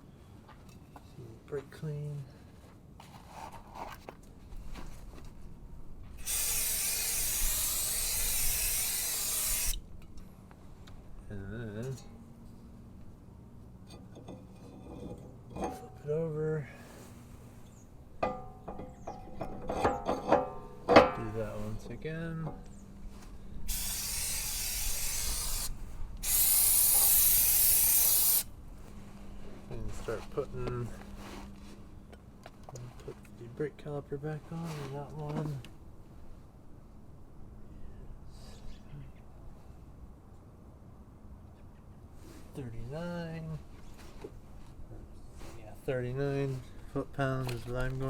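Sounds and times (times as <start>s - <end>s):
aerosol spray hissing: 6.2s - 9.8s, 23.7s - 28.5s.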